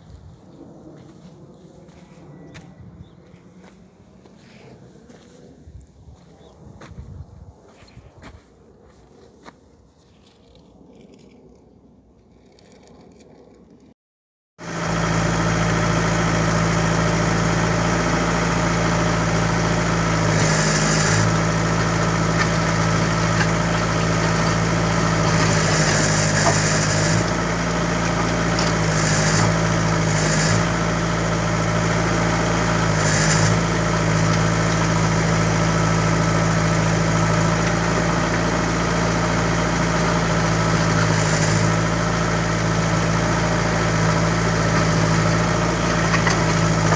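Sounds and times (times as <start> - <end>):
diesel engine idling: 14.6 - 46.9.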